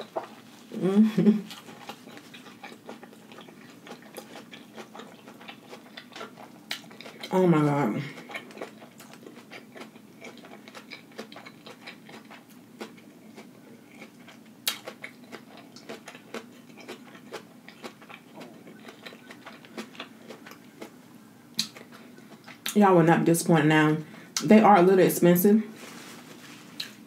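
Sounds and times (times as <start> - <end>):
wet mouth clicks chewing: 8.2 - 20.9.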